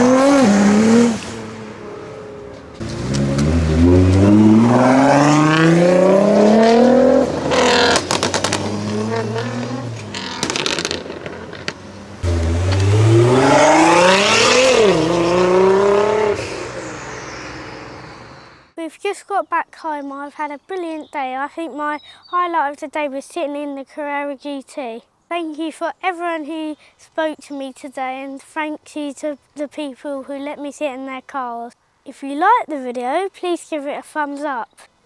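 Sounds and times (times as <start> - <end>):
car engine accelerating hard: 0.0 - 18.7
exhaust pops and crackles: 2.4 - 15.4.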